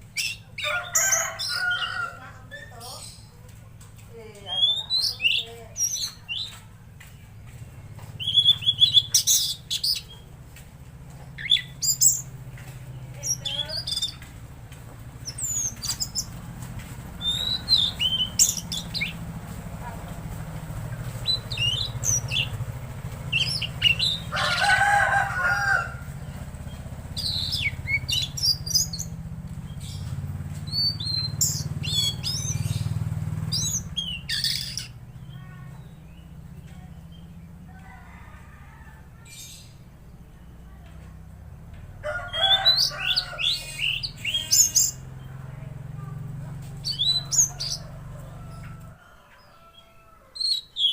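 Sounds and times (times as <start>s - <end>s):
songbird whistled phrases: 4.5s - 6.5s, 8.2s - 10.2s, 17.2s - 19.2s, 30.7s - 32.7s, 46.8s - 47.8s
harsh lower bird call: 17.2s - 19.3s, 21.1s - 30.1s, 30.7s - 36.3s, 42.0s - 45.1s, 46.8s - 47.9s.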